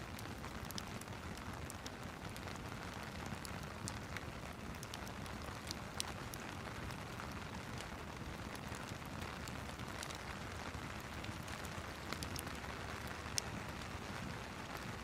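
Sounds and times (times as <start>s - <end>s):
steady rain: 0.0s - 15.0s
fireplace fire crackling: 0.1s - 15.0s.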